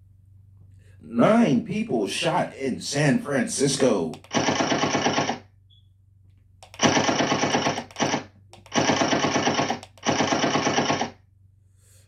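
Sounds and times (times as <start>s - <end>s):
automatic machine-gun fire: 4.2s - 5.5s, 6.6s - 11.2s.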